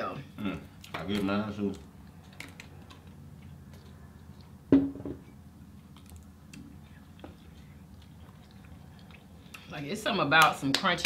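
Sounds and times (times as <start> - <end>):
chewing: 0.6 - 4.7, 5.7 - 9.8.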